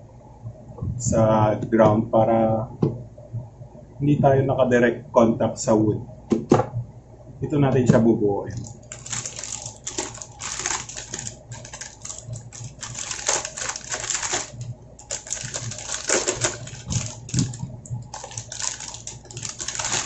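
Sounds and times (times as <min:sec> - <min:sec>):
plastic packaging crinkling: 0:08.6 - 0:20.0.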